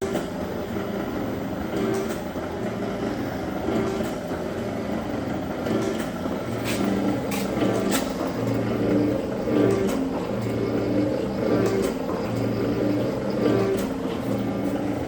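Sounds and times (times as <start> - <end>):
metal-working shaper humming: 5.0 - 15.0.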